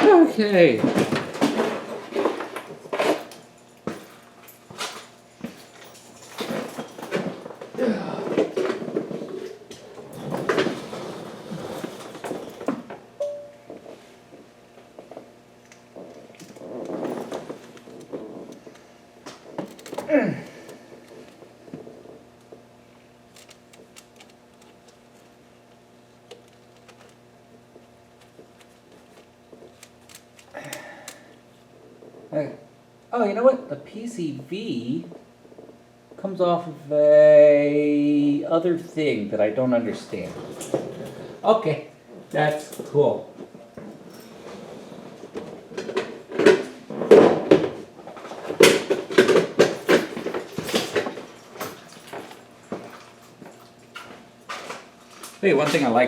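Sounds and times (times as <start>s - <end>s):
steady low hum: 0.0s - 56.0s
metal tools clinking and clattering: 0.9s - 7.6s, 48.6s - 52.4s.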